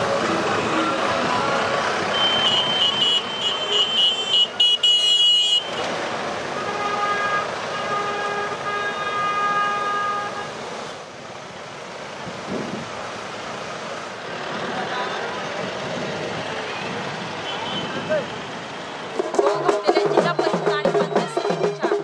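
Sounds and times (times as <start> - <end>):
road traffic noise: 0.0 - 22.0
vehicle horns honking: 2.1 - 10.6, 17.4 - 18.4.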